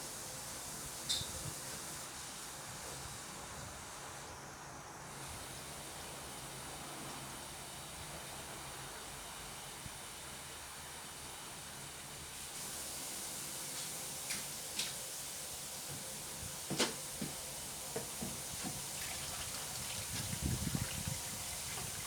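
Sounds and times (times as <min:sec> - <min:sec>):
water running from a tap: 0:17.2 - 0:22.0.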